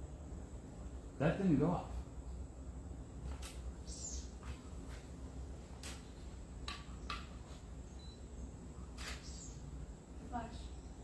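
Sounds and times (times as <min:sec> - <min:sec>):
birds chirping: 0:03.5 - 0:11.0.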